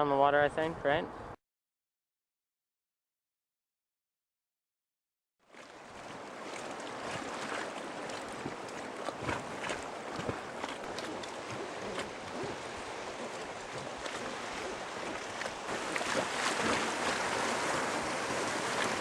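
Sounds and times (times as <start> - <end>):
river water rushing: 5.5 - 19.0
small knocks and splashes: 5.5 - 19.0.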